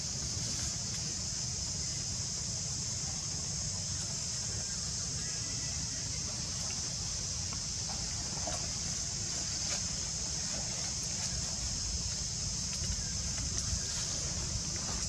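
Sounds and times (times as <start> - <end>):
high-pitched insect chorus: 0.0 - 15.0
wind rumble on microphone: 7.4 - 15.0.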